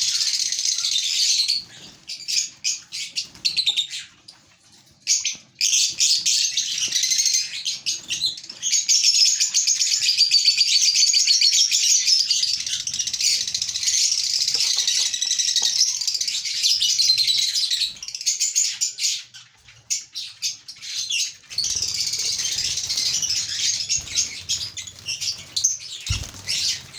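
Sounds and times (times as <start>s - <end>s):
lovebirds chattering: 11.6s - 26.9s.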